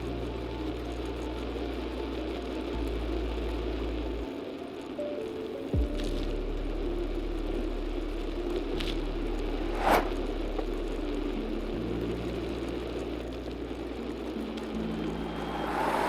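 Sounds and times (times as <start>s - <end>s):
background music: 0.0s - 16.0s
car driving rumble: 5.8s - 16.0s
short rushing noise: 9.7s - 10.2s.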